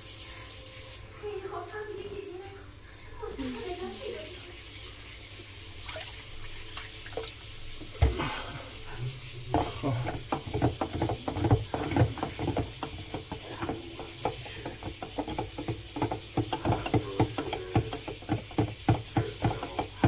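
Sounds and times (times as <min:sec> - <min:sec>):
spoon scraping in water: 0:08.9 - 0:20.0
knock: 0:09.5 - 0:20.0.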